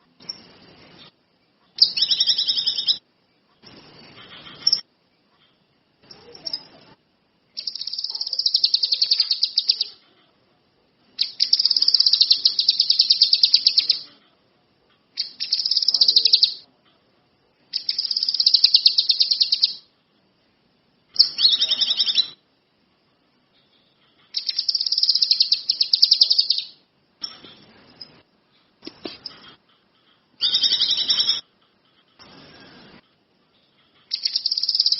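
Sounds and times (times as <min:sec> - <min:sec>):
songbird trilling: 0:01.8 - 0:03.0, 0:07.6 - 0:10.0, 0:11.2 - 0:14.1, 0:15.2 - 0:16.6, 0:17.7 - 0:19.9, 0:21.2 - 0:22.4, 0:24.3 - 0:26.8, 0:30.4 - 0:31.4, 0:34.1 - 0:34.9.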